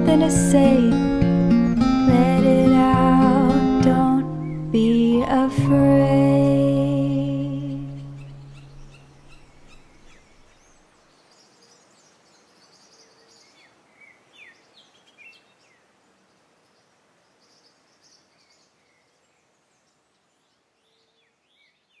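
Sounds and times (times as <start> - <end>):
faint background noise: 0.0 - 22.0
birds chirping and whistling: 7.7 - 11.6.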